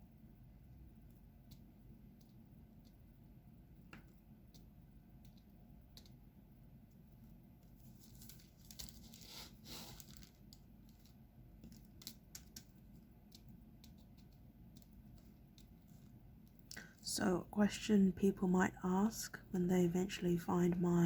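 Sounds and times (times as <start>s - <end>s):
small clicks and taps: 1.1s - 3.1s, 3.8s - 6.2s, 10.4s - 16.9s
crinkling rustle: 7.6s - 13.4s.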